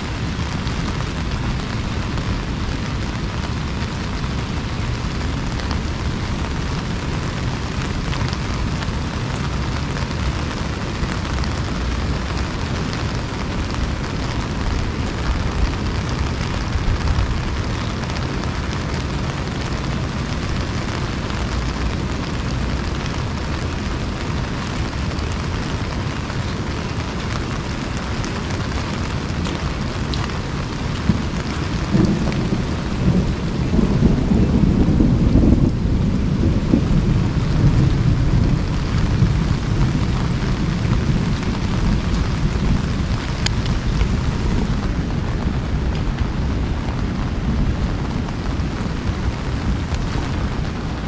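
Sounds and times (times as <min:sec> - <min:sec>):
heavy rain on umbrella: 0:00.0 - 0:51.0
steady low rumble: 0:00.0 - 0:51.0.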